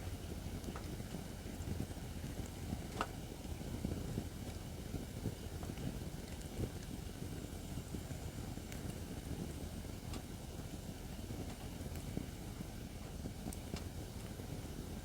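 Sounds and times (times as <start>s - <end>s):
firewood crackling and popping: 11.4s - 14.7s.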